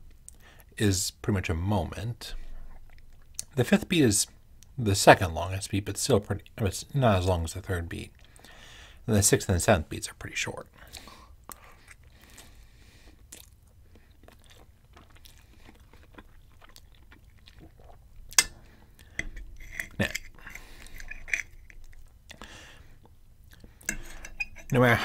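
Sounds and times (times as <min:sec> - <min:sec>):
person chewing food: 0:11.5 - 0:24.8
metal fork scraping a plate: 0:19.2 - 0:21.8, 0:23.9 - 0:24.8.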